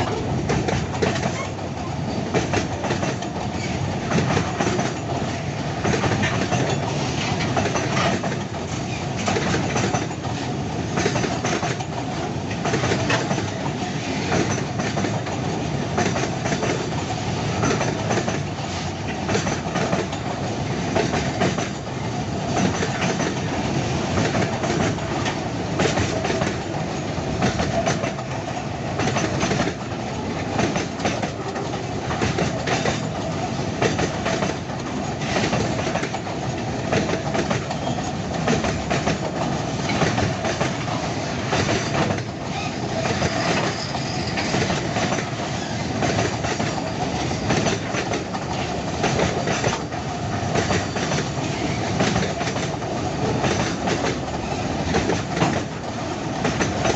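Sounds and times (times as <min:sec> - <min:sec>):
freight train rumble: 0:00.0 - 0:56.9
train wheels clacking on rail joints: 0:00.0 - 0:56.9
thin steady squeal: 0:43.3 - 0:44.5.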